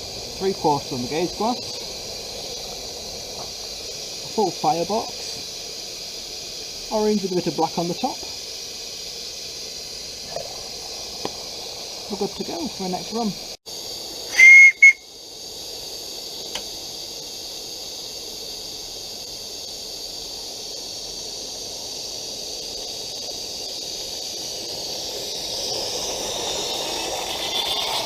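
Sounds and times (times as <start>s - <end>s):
steam hissing: 0.0s - 28.0s
loud whistle toots: 14.3s - 15.1s, 25.4s - 28.0s.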